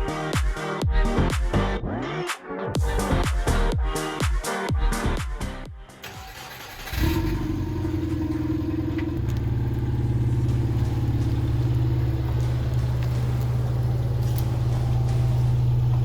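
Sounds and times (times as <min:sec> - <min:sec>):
motor humming: 0:06.9 - 0:16.0.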